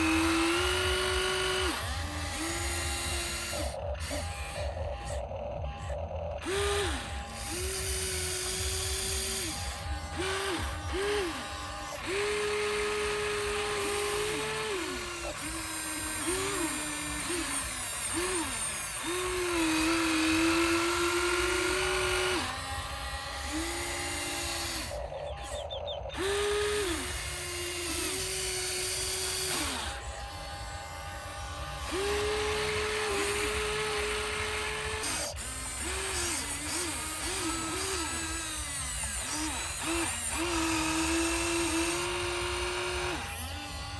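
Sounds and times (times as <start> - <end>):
small electric motors whining: 0.0 - 43.9.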